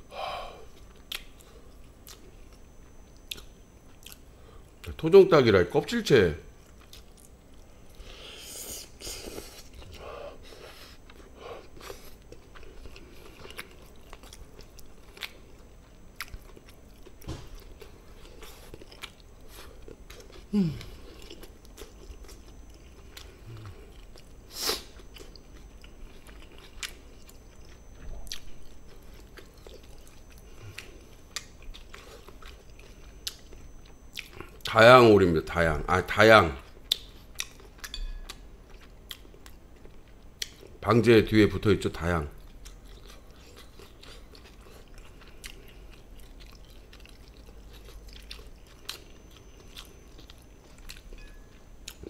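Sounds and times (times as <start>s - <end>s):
chewing and biting chicken: 42.4s - 51.2s.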